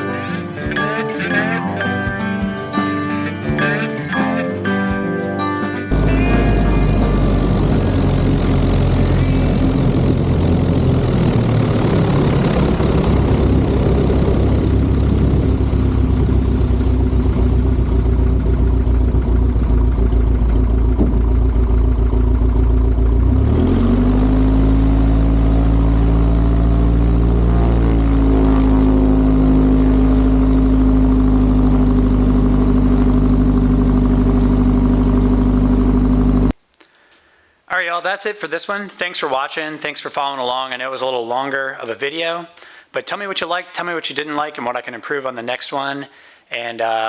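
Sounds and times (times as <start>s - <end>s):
light aircraft engine droning: 5.9s - 34.3s.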